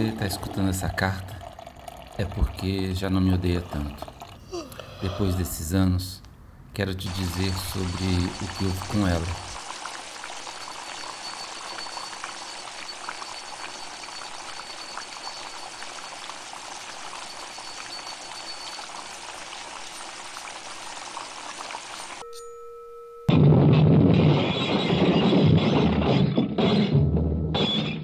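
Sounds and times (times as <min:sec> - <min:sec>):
falling water hissing: 0:07.1 - 0:22.2
small crackles and drips: 0:07.3 - 0:22.2.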